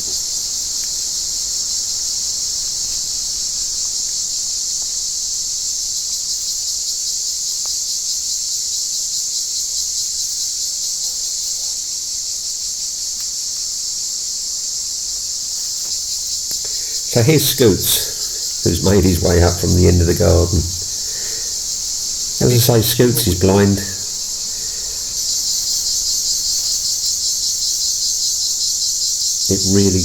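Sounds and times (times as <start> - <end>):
cicadas buzzing: 0.0 - 30.0.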